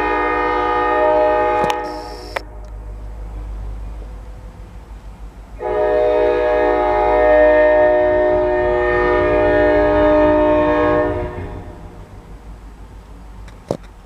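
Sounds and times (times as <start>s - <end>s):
locomotive air horn: 0.0s - 2.7s, 5.6s - 12.3s
train rumbling: 0.0s - 14.0s.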